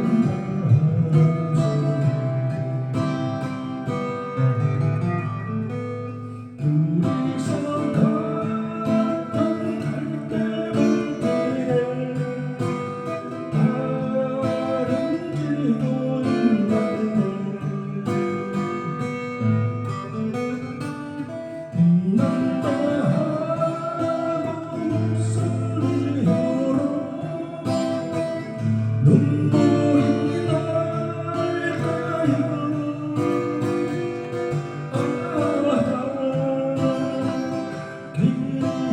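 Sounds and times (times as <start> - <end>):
acoustic guitar melody: 0.0 - 38.9.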